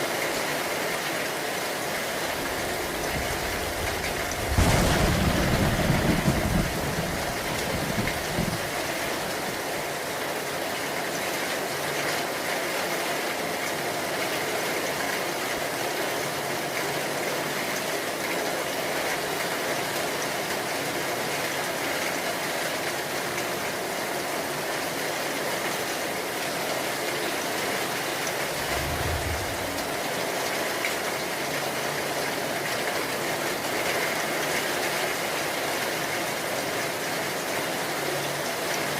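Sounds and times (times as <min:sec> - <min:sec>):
heavy rain falling: 0:00.0 - 0:38.9
low rumble of thunder: 0:02.3 - 0:09.4, 0:28.4 - 0:30.4.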